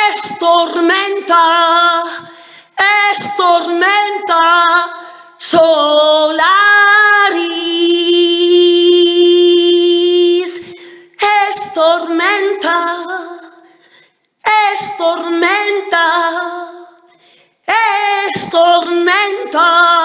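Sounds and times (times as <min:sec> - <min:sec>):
woman singing high chant: 0:02.8 - 0:13.6, 0:17.7 - 0:20.0.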